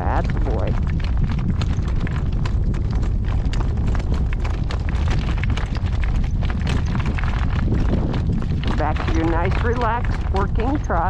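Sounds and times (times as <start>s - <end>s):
horse hoofbeats trotting: 0.0s - 11.0s
wind rumbling on microphone: 0.0s - 11.0s.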